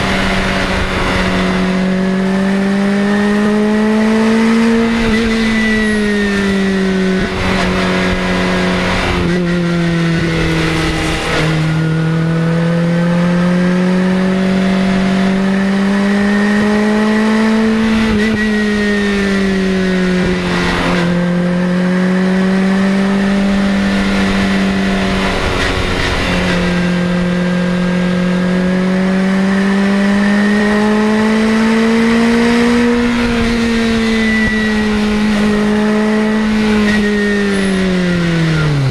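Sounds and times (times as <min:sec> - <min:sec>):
car engine and loud exhaust: 0:00.0 - 0:38.9.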